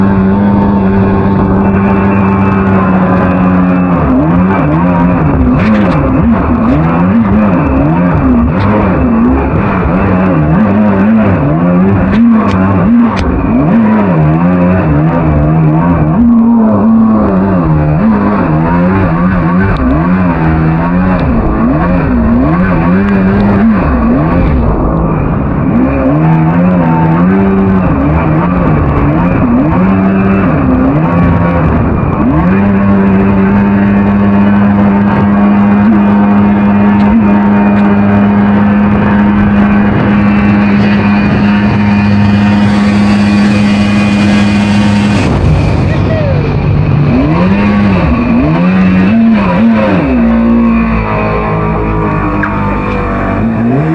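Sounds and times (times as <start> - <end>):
jet boat engine revving: 0.0 - 53.9.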